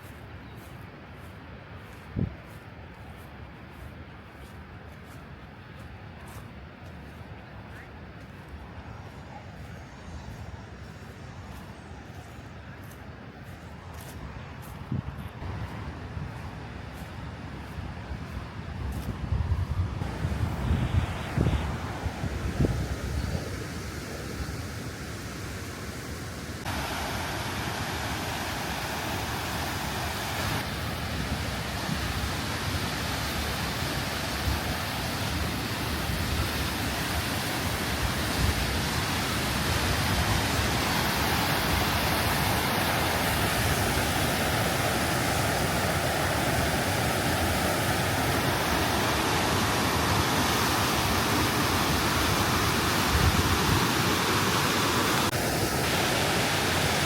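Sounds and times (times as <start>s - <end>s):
waterfall rushing: 20.0s - 57.0s.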